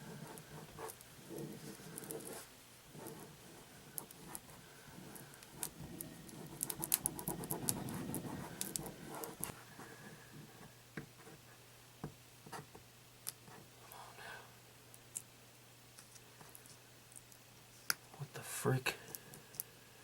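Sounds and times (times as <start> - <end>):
fingers scraping vinyl decal: 0.0 - 2.4, 3.0 - 9.6
faint low hum: 0.0 - 20.0.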